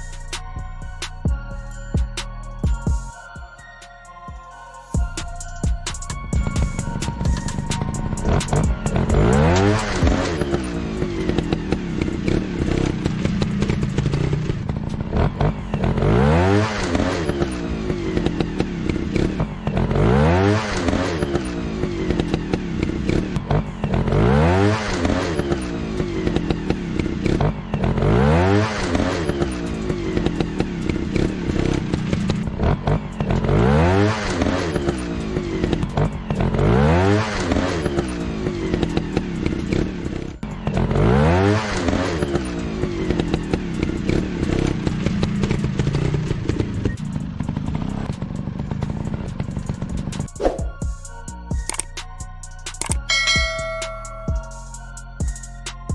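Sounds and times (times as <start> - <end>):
dirt bike engine revving: 6.3 - 50.8.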